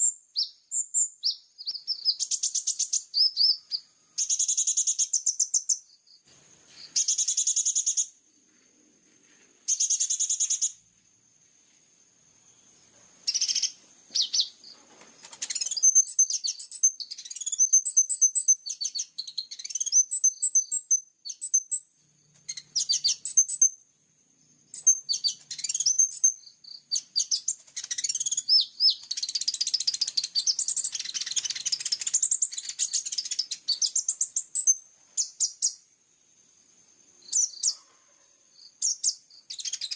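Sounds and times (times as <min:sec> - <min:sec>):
sunbird singing: 0:00.0 - 0:08.7, 0:09.5 - 0:11.0, 0:12.1 - 0:39.9.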